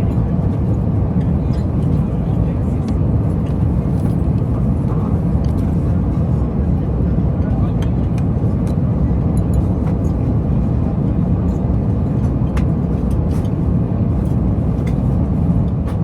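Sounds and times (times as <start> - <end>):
airliner cabin engine rush: 0.0 - 16.0.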